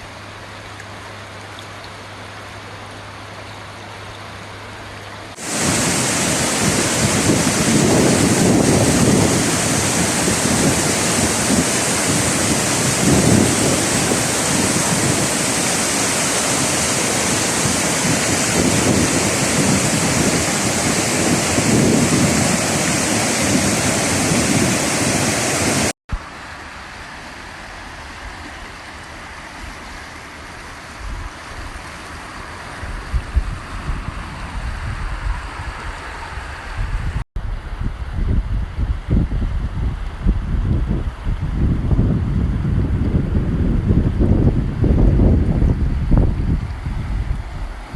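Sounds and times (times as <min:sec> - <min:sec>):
rushing flowing water: 0:00.0 - 0:37.2
wind buffeting microphone: 0:05.4 - 0:25.9, 0:32.8 - 0:47.9.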